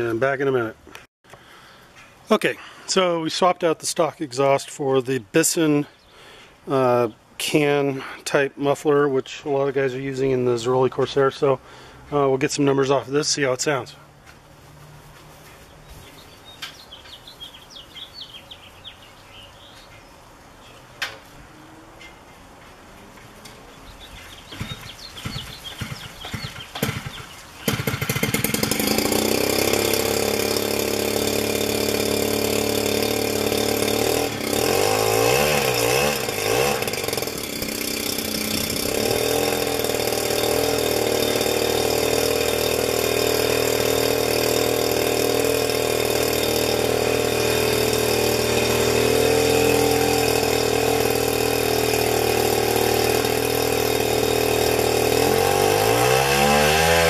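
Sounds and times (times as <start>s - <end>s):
two-stroke engine running: 24.5s - 57.0s.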